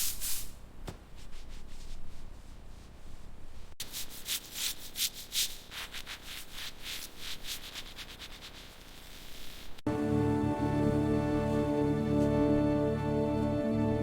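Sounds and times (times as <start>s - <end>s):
hissing rubbing strokes on a surface: 1.2s - 9.8s.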